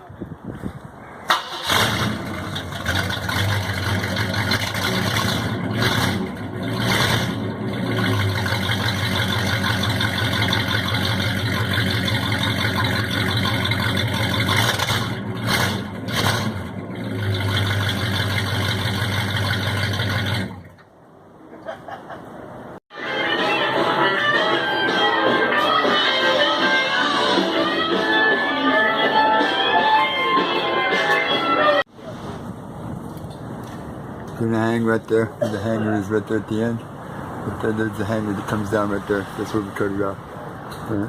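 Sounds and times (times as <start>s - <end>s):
car engine starting and running: 1.2s - 21.1s.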